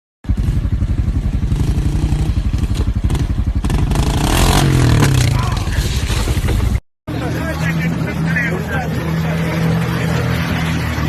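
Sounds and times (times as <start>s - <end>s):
vehicle engine running hard: 0.2s - 11.0s
clatter: 4.8s - 6.8s.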